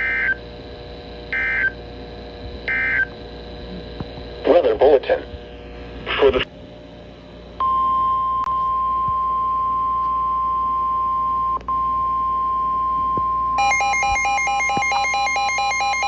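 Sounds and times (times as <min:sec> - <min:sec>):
alternating electronic chirping tones: 0:01.3 - 0:01.8, 0:07.6 - 0:16.0
steady alarm tone: 0:01.3 - 0:01.8, 0:02.7 - 0:03.1, 0:10.5 - 0:16.0.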